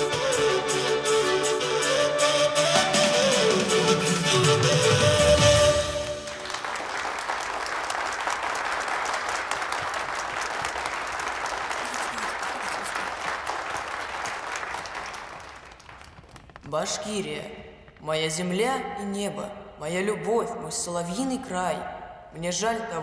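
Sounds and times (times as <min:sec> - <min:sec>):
audience applauding: 0:04.4 - 0:16.7.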